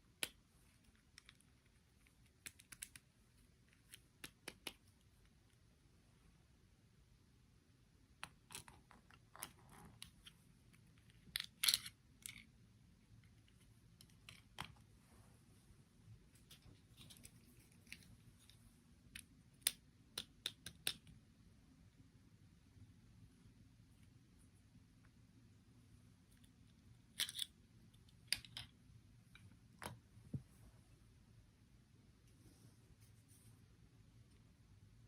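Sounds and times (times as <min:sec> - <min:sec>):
plastic toy pieces clicking: 0:11.1 - 0:12.5, 0:27.2 - 0:27.5.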